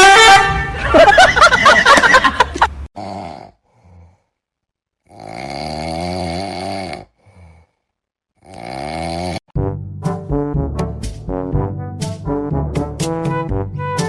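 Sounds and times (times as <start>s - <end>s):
animal snoring: 3.0s - 4.2s, 5.0s - 7.8s, 8.4s - 9.5s
faint breaths: 3.5s - 4.6s, 7.0s - 8.1s.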